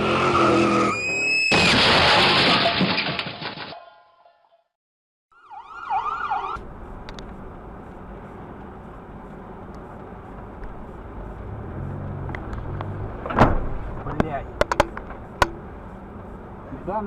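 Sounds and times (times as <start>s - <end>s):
car road and engine noise: 0.0s - 1.8s, 5.4s - 17.0s
siren warbling yelp: 5.3s - 6.6s.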